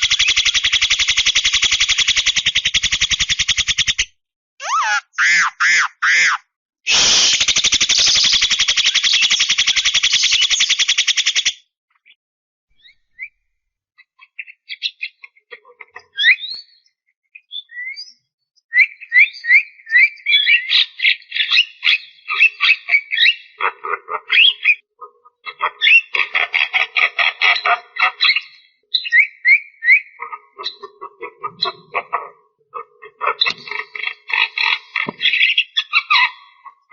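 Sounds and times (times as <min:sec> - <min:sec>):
bird chattering and whistling: 0:00.0 - 0:11.6, 0:16.0 - 0:16.8, 0:17.4 - 0:23.6, 0:28.2 - 0:36.9.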